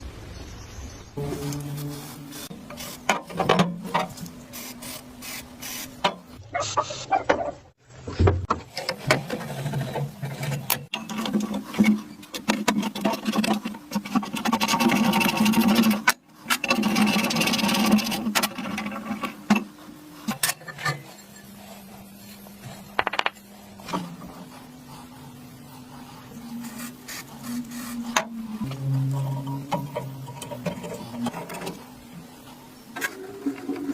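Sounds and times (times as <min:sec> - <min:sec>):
steady low hum: 0:18.9 - 0:33.4.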